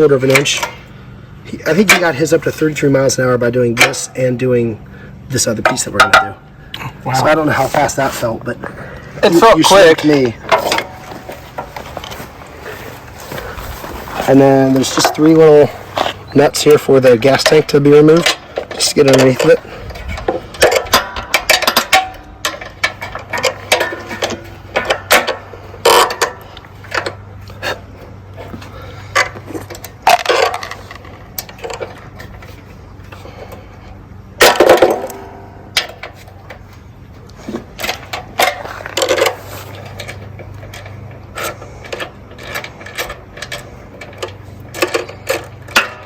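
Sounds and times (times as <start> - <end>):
hand tools clinking on metal: 0.0 - 0.8, 5.4 - 12.9, 14.2 - 27.8, 37.7 - 46.0
low steady hum: 0.0 - 46.0.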